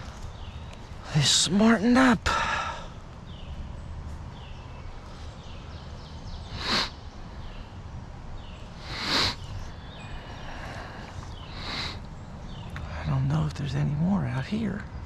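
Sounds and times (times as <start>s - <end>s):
falling bird chirps: 3.2s - 13.1s.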